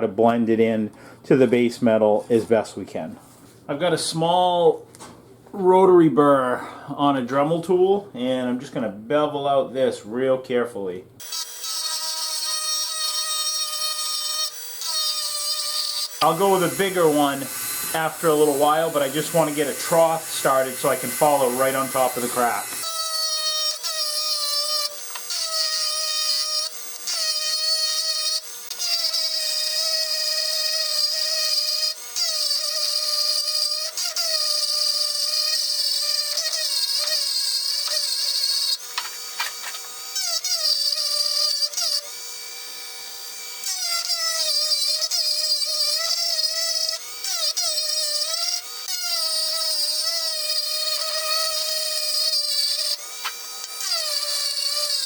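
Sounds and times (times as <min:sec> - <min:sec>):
rotary tool grinding metal: 0:11.2 - 0:55.0.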